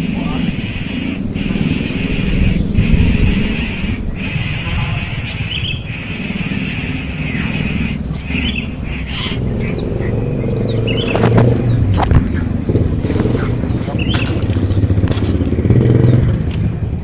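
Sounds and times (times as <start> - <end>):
low rumble of traffic: 0.0 - 17.0
vehicle engine hum: 0.0 - 17.0
sharp clicks: 7.9 - 17.0.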